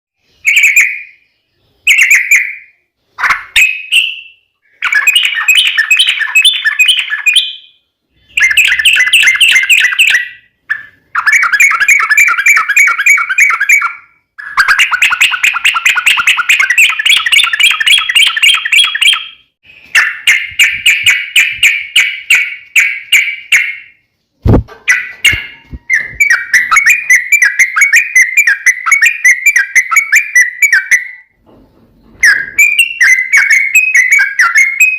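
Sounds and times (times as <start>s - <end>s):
bird chattering song: 0.2s - 31.4s, 32.2s - 34.9s
sharp knock: 24.4s - 25.8s.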